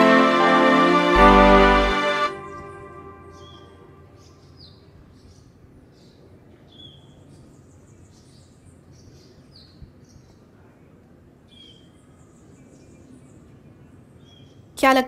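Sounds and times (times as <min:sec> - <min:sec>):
faint outdoor ambience: 0:00.0 - 0:15.0
birds chirping: 0:01.0 - 0:04.7.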